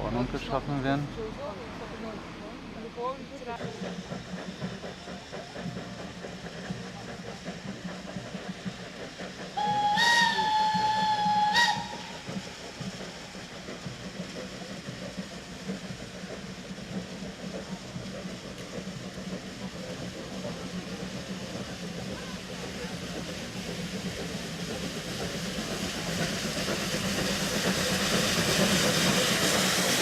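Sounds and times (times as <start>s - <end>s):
steam locomotive whistle: 9.6s - 12.6s.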